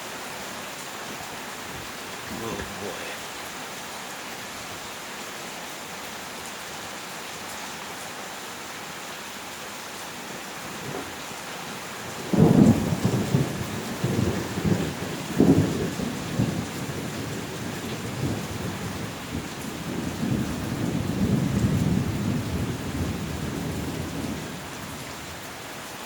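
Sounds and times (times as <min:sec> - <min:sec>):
heavy rain: 0:00.0 - 0:26.0
thunder rumbling: 0:12.0 - 0:19.0.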